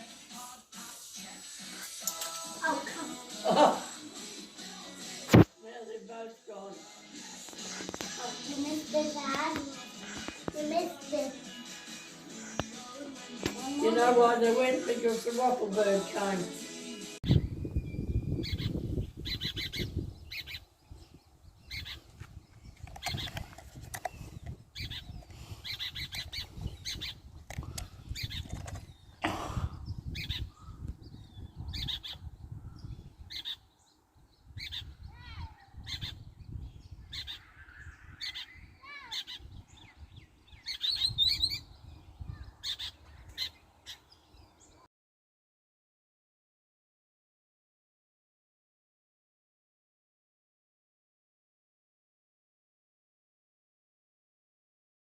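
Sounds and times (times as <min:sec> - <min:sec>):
warbled bird phrases: 0:18.2 - 0:22.1, 0:23.0 - 0:33.7, 0:34.5 - 0:44.8
wild birds calling: 0:18.3 - 0:44.8.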